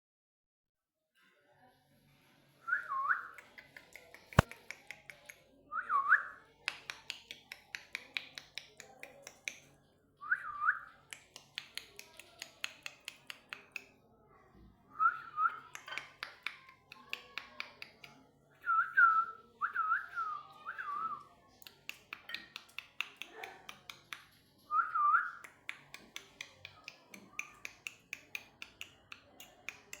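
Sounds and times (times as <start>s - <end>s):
sharp snap: 4.1s - 5.0s.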